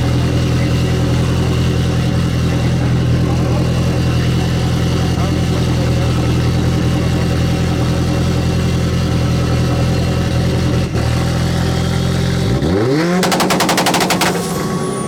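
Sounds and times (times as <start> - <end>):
car engine revving loudly: 12.5 - 14.6.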